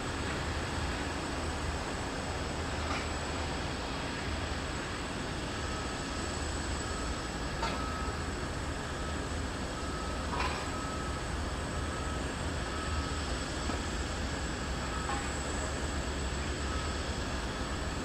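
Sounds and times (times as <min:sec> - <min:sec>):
low rumble and hiss of machinery: 0:00.0 - 0:18.0
reversing alarm beeping: 0:04.8 - 0:18.0.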